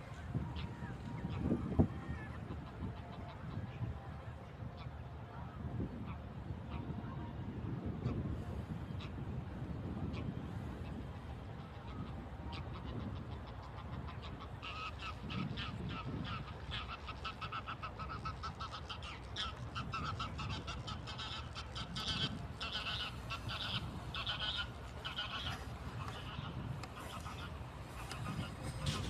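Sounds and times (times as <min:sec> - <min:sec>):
waterfowl chattering calls: 0:11.6 - 0:29.0.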